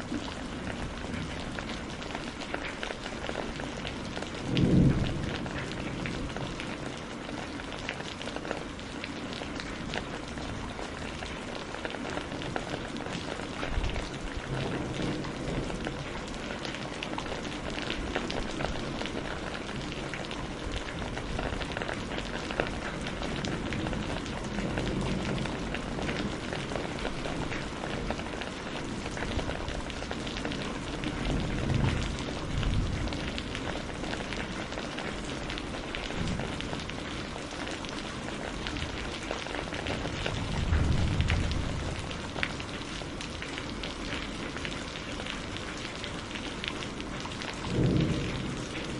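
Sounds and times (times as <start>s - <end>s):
steady rain falling: 0.0s - 48.9s
distant thunder rumbles: 3.2s - 7.5s, 12.8s - 43.8s, 47.5s - 48.9s.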